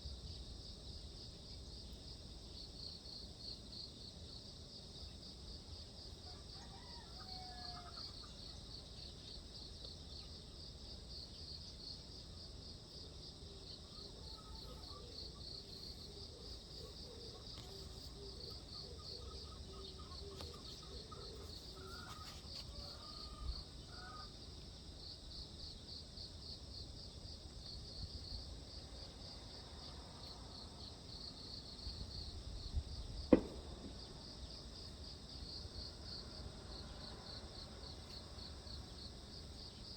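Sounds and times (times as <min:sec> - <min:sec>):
crickets chirping: 0:00.0 - 0:39.9
faint bird calls: 0:13.9 - 0:24.3.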